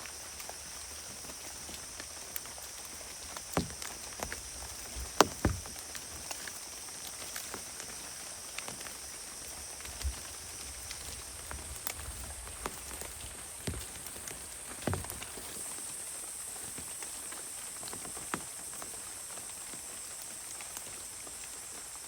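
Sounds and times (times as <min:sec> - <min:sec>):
rain hiss: 0:00.0 - 0:22.0
raindrops pattering: 0:00.0 - 0:22.0
sharp knocks: 0:03.5 - 0:04.4, 0:05.0 - 0:05.7.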